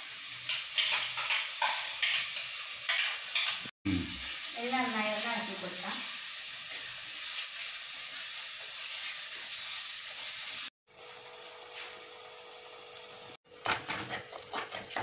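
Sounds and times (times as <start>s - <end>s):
food sizzling in oil: 0.0s - 15.0s
spoon scraping a pot: 13.6s - 15.0s.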